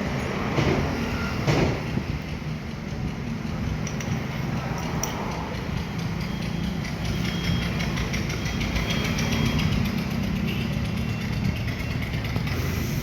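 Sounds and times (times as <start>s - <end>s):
engine idling rumble: 0.9s - 13.0s.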